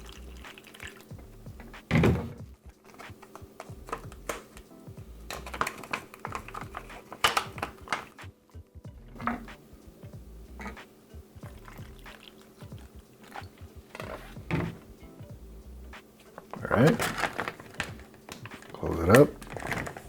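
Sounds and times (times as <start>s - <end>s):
water pouring into plastic pouch: 0.0s - 1.1s, 16.8s - 20.0s
plastic pouch crinkling: 5.3s - 8.2s, 16.5s - 20.0s.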